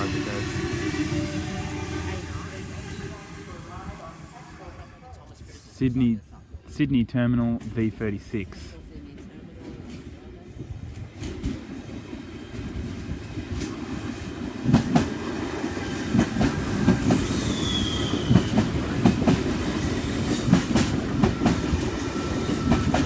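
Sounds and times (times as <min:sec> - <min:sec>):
electric train rolling past: 0:00.0 - 0:05.3, 0:08.7 - 0:23.0
train wheel squeal: 0:16.8 - 0:18.8, 0:21.2 - 0:23.0.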